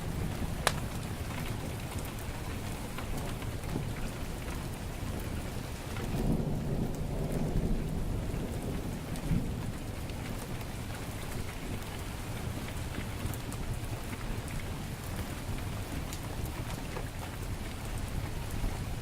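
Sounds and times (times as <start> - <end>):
wood fire crackling: 0.0 - 7.0
heavy rain falling: 0.0 - 19.0
thunder rumbling: 5.1 - 11.8.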